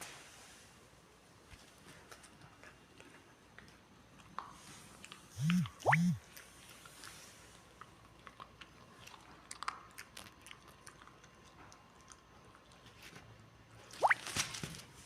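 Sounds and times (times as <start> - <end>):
puppy chewing and licking: 1.8 - 14.4.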